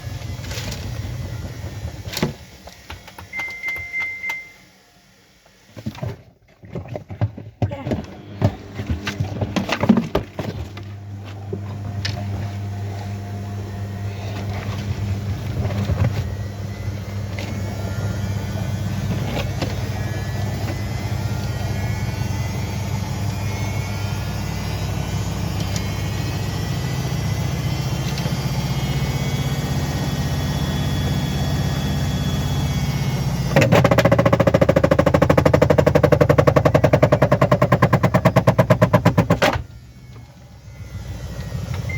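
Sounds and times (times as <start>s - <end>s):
washing machine motor hum: 0.0s - 41.9s
whines rising in pitch: 11.6s - 41.9s
rapid knocking and rattling: 33.5s - 39.6s.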